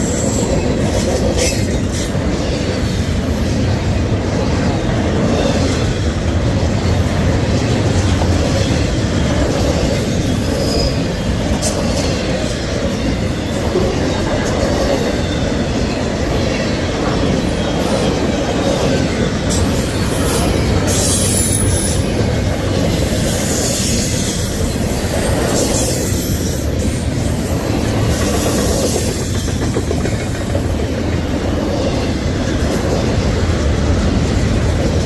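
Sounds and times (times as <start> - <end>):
steel wheels rumbling on rail: 0.0 - 35.0
high wheel squeal: 8.7 - 11.7, 19.5 - 22.2, 22.9 - 29.8.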